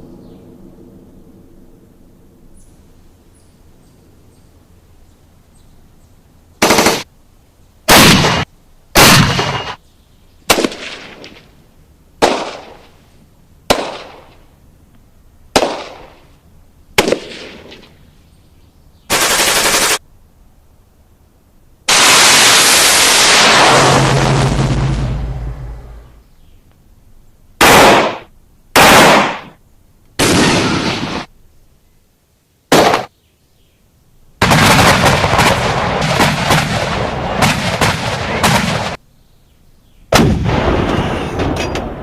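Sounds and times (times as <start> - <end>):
automatic gunfire bursts: 6.6 - 7.0, 19.1 - 20.0
single gunshots with echo: 7.9 - 9.8, 10.5 - 11.4, 12.2 - 12.8, 13.7 - 14.3, 15.6 - 16.2, 17.0 - 17.8, 27.6 - 29.6, 32.7 - 33.1.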